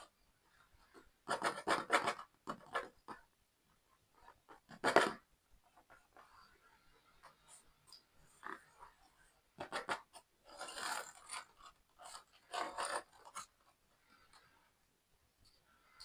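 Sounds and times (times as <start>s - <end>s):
packaging rustling scrapes: 9.7s - 13.6s.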